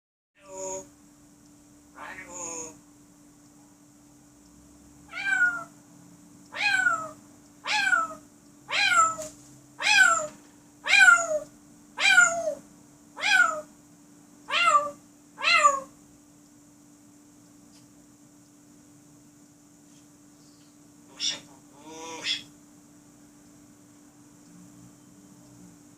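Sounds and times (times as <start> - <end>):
parrot mimicking cat meow: 2.0 - 2.8, 5.1 - 5.8, 6.5 - 12.6, 13.2 - 13.7, 14.5 - 16.0, 21.1 - 22.5.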